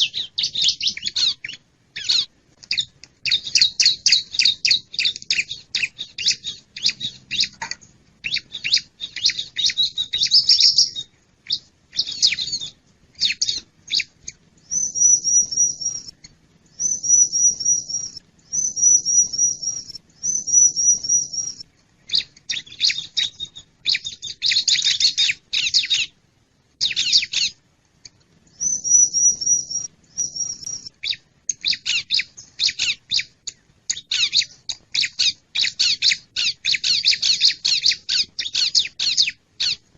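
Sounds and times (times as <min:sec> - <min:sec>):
bird chipping calls: 0:00.0 - 0:26.2, 0:26.8 - 0:27.6, 0:28.6 - 0:39.8.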